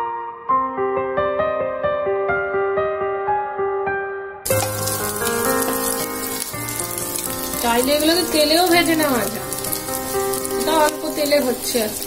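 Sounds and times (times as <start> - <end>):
background music: 0.0 - 12.0
patties sizzling on a griddle: 4.5 - 12.0.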